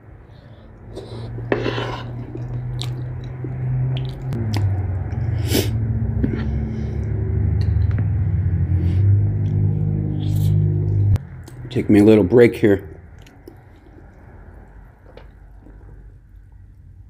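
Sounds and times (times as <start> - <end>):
low steady hum: 0.0 - 17.0
chewing: 0.8 - 5.2, 13.1 - 16.8.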